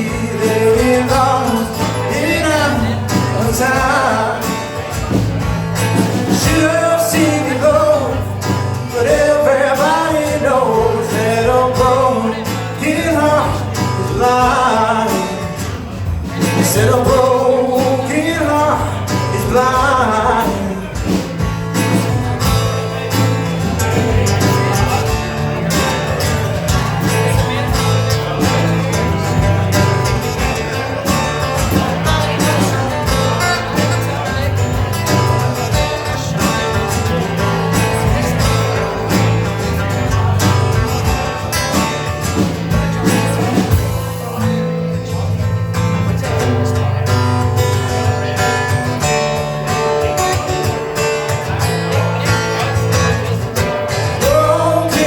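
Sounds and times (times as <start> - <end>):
country guitar with band: 0.0 - 55.0.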